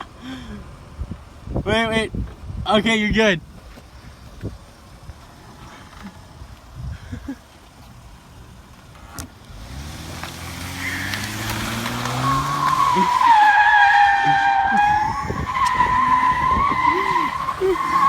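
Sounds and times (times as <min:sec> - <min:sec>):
car engine revving: 0:09.5 - 0:18.0
tyres squealing: 0:10.6 - 0:18.0.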